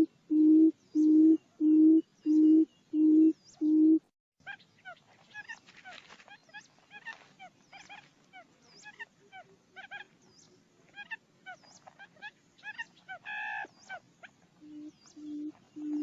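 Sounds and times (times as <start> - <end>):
whistled quail calls: 11.0 - 16.0.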